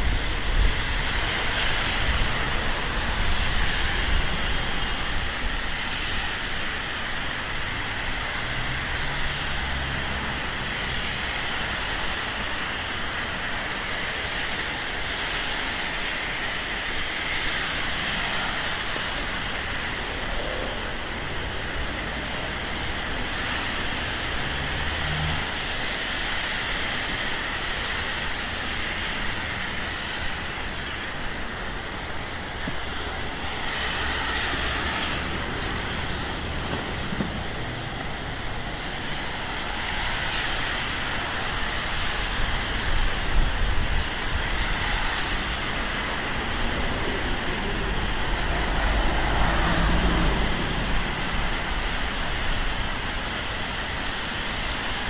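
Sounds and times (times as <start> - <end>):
car tyres hissing on wet road: 0.0 - 55.0
rain hissing on pavement: 0.0 - 55.0
heavy vehicles rumbling past: 7.7 - 11.0, 19.6 - 25.9, 32.2 - 39.4, 45.5 - 53.5.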